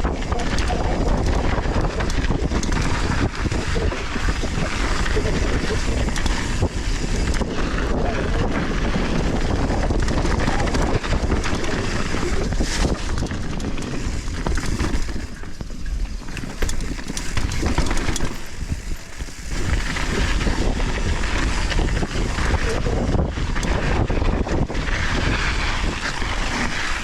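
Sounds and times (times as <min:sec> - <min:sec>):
bike rattling: 0:00.0 - 0:27.0
wind buffeting camera: 0:00.0 - 0:27.0.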